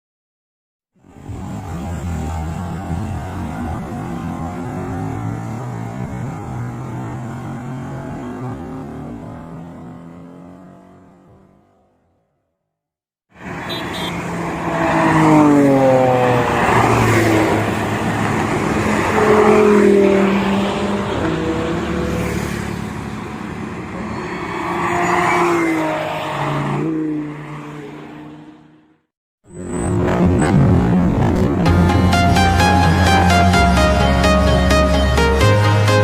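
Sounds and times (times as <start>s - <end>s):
car engine revving: 1.0s - 12.2s, 13.4s - 28.3s, 29.5s - 36.0s.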